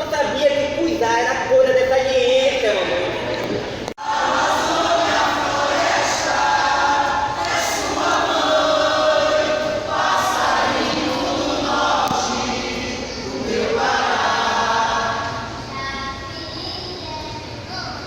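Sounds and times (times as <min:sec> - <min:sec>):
group of voices singing: 0:04.0 - 0:15.7.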